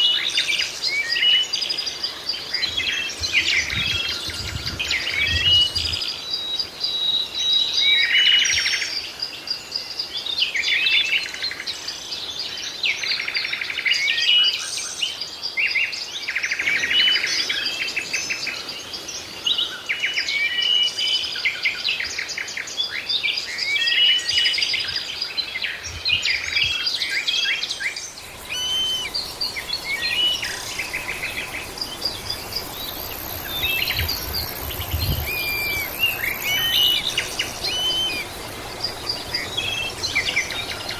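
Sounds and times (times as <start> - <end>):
birds chirping and singing: 23.1 - 40.9
faint high steady tone: 28.2 - 40.9.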